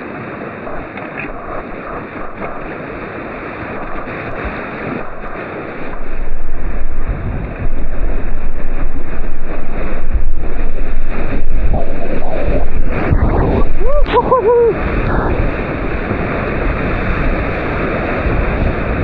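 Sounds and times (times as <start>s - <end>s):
whitewater roaring: 0.0s - 19.0s
wind buffeting on microphone: 0.0s - 19.0s.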